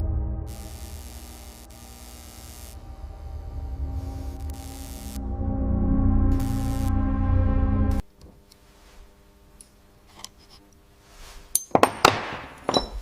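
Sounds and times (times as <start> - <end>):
background music: 2.8 - 8.0.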